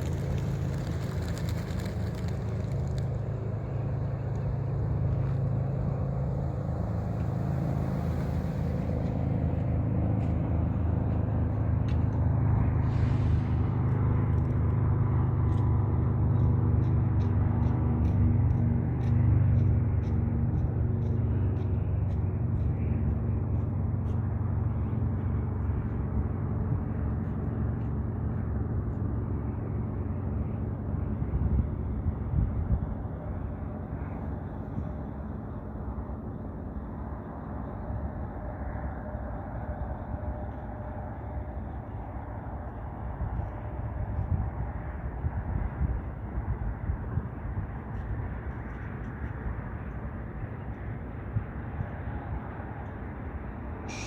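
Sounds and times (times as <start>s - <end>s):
vehicle engine rumbling: 0.0s - 54.0s
faint hum: 19.0s - 54.0s.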